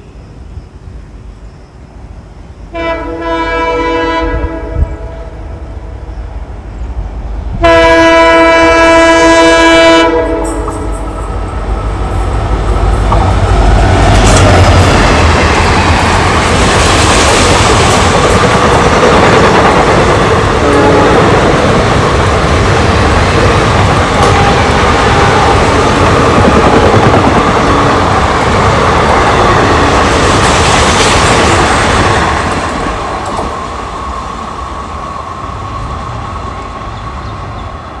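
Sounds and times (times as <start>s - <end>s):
train wheels clattering on rails: 10.3s - 34.3s.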